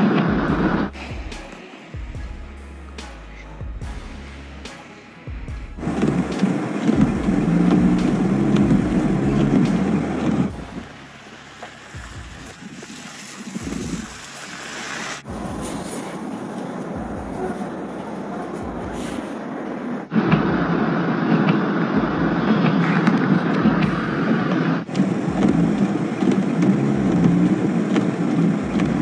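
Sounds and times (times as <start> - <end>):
vehicles running: 2.3 - 20.8.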